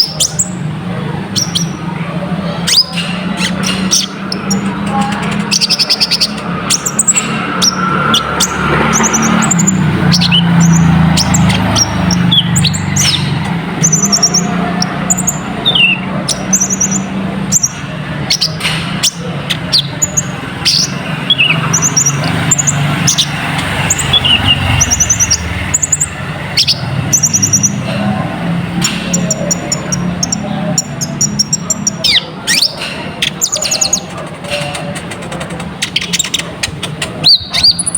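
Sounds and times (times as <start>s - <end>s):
bird twittering: 0.0s - 37.9s.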